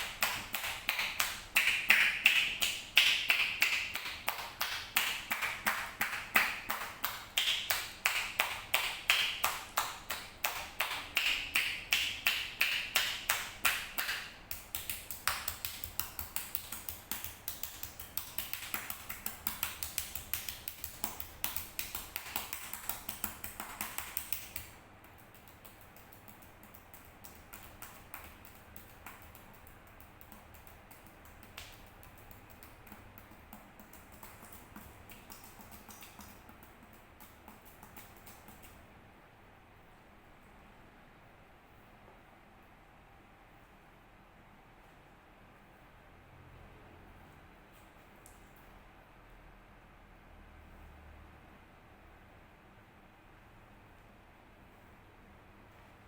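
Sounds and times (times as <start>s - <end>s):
hands tapping on body: 0.0s - 38.8s.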